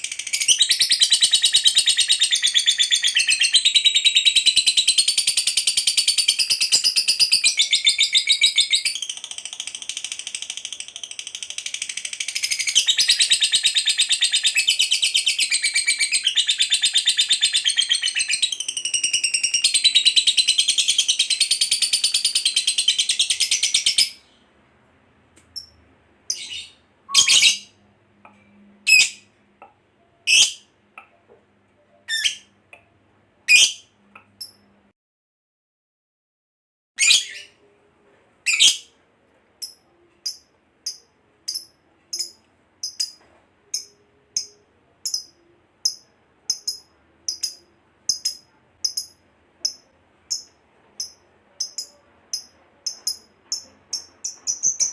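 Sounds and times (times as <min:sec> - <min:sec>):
bird chirps: 0:00.0 - 0:24.4, 0:25.5 - 0:27.8, 0:31.8 - 0:32.6, 0:39.6 - 0:54.9
bird high-pitched trill: 0:25.6 - 0:27.8, 0:39.6 - 0:54.9.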